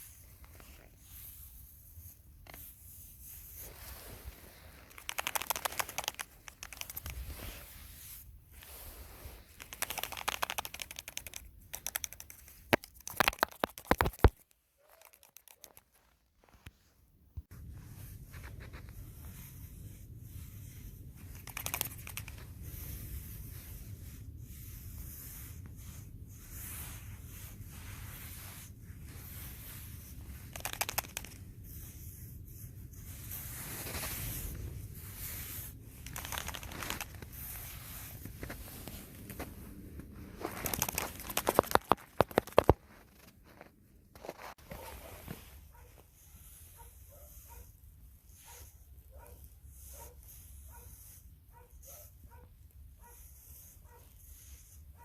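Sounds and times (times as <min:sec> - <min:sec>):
faint rustle with crackles: 0:00.0 - 0:55.0
crinkling and tearing material: 0:02.5 - 0:16.9, 0:33.4 - 0:45.8.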